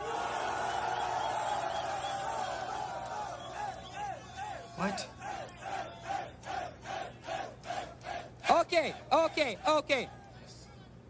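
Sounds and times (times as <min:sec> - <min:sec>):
crowd chanting rhythmically: 0:02.8 - 0:09.6.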